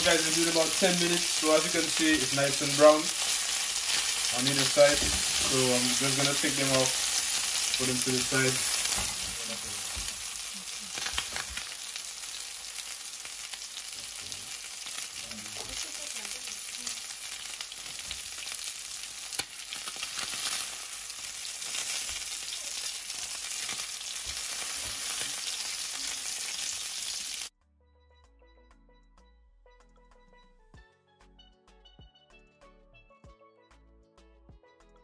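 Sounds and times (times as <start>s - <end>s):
chicken sizzling in hot oil: 0.0s - 27.5s.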